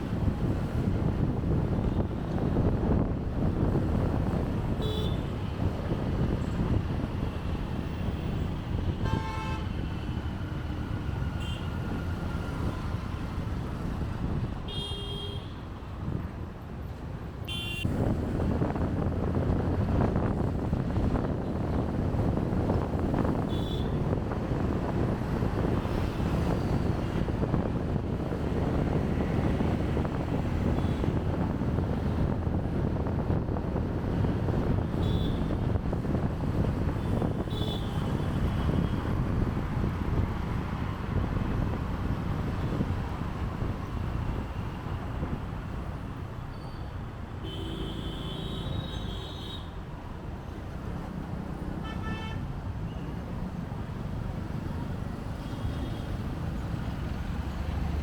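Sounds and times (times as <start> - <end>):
traffic rumble and road noise: 0.0 - 58.0
vehicle horns honking: 4.8 - 5.3, 9.0 - 9.9, 11.4 - 11.8, 14.7 - 15.6, 17.5 - 17.9, 23.4 - 24.0, 34.9 - 35.6, 37.1 - 39.0, 47.4 - 49.8, 51.8 - 53.1.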